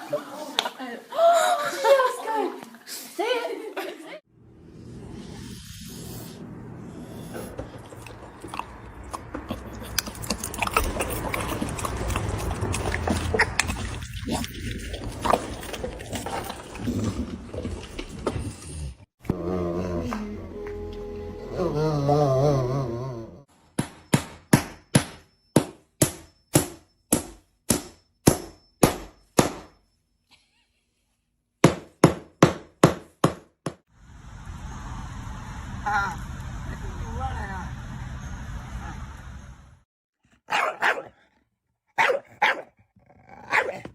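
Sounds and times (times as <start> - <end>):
crunchy chewing and biting: 7.1 - 18.7.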